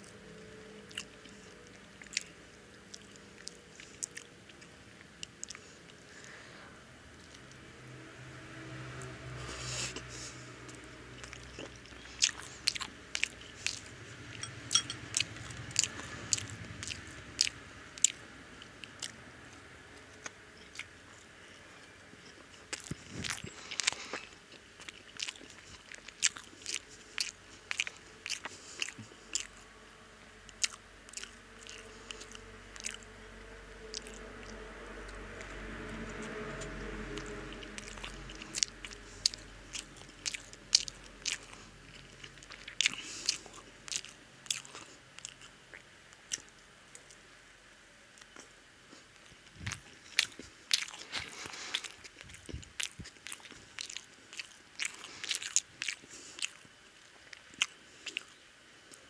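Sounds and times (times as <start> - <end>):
toast being chewed: 0.0 - 6.4, 9.5 - 29.7, 30.5 - 33.0, 36.3 - 47.2, 48.2 - 59.0.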